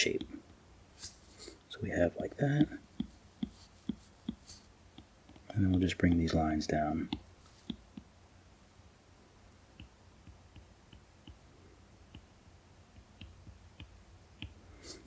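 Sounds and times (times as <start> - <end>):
stylus tapping on tablet screen: 2.4 - 8.1, 9.7 - 15.0.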